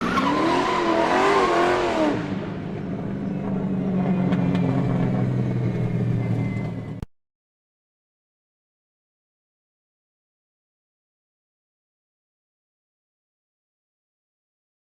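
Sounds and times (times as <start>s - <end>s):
car engine revving: 0.0s - 7.0s.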